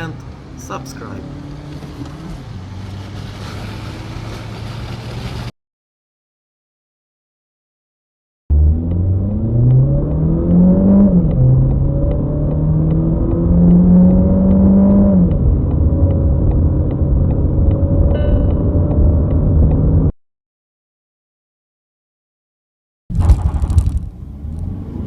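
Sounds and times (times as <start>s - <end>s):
car engine accelerating: 0.0s - 5.5s, 8.5s - 20.1s, 23.3s - 25.0s.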